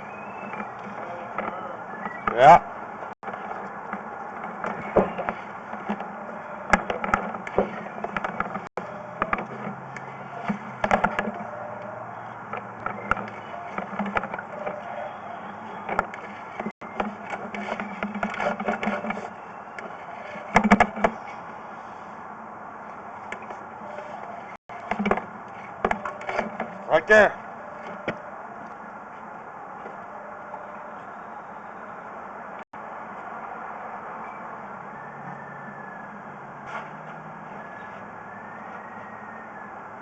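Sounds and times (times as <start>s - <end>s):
cable knocking and scraping in pipe: 3.2s - 11.5s, 12.5s - 14.9s, 15.8s - 21.4s.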